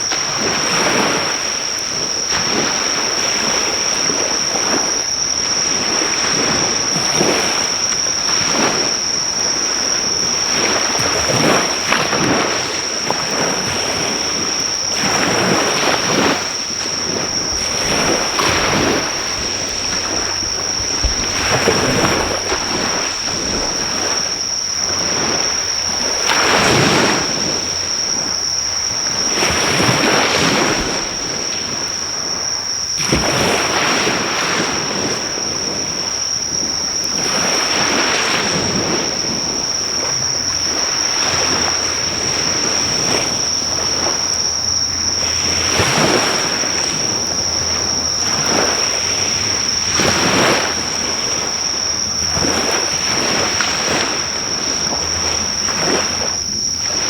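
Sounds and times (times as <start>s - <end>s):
high-pitched insect trill: 0.0s - 57.0s
sea waves breaking on shore: 0.0s - 57.0s.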